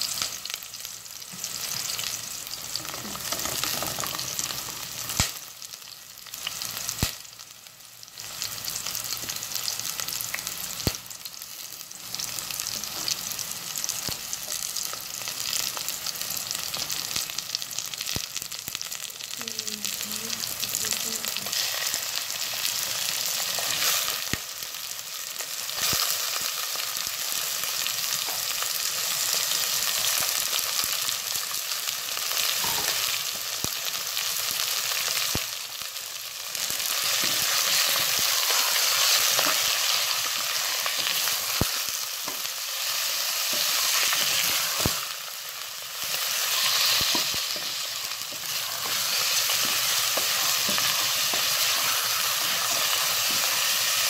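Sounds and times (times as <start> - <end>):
onion sizzling in hot oil: 0.0 - 54.0.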